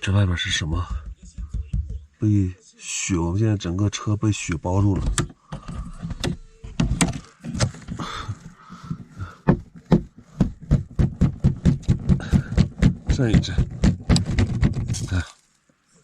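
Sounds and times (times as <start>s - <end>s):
knocks and rustles: 0.4s - 2.2s, 4.8s - 15.5s.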